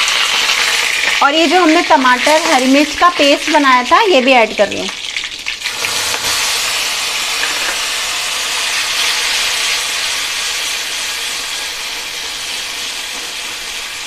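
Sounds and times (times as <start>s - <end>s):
paste sizzling in hot oil: 0.0s - 14.0s.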